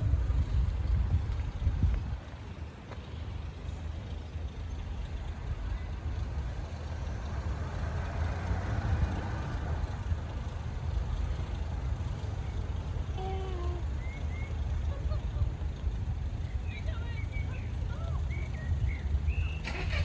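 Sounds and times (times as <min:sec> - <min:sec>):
wind rumble on microphone: 0:00.0 - 0:03.8
vehicle passing by: 0:05.2 - 0:13.0.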